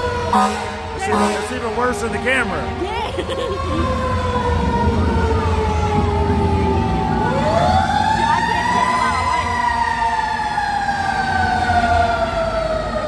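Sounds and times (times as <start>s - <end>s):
fire truck sirens wailing: 0.0s - 13.0s
truck engines rumbling: 0.0s - 13.0s.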